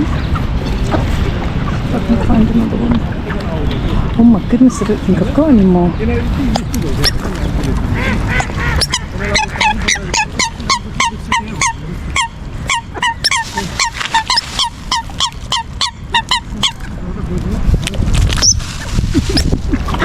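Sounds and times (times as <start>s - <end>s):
bird calling rapidly: 6.2s - 17.0s, 18.4s - 20.0s.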